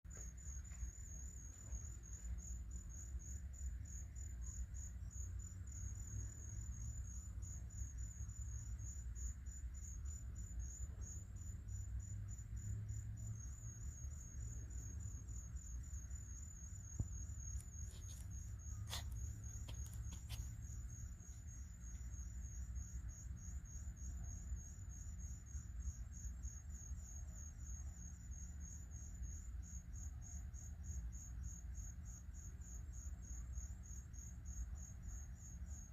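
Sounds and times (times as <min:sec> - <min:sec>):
crickets chirping: 0:00.0 - 0:35.9.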